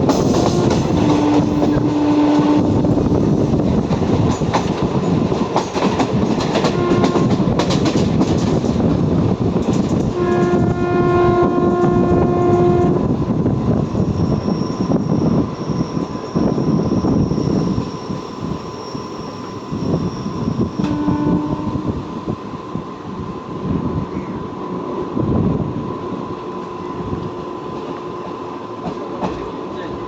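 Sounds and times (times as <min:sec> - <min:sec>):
train wheels clattering: 0:00.0 - 0:10.8
train horn: 0:00.3 - 0:03.2, 0:06.6 - 0:07.5, 0:10.1 - 0:13.2, 0:20.7 - 0:22.1.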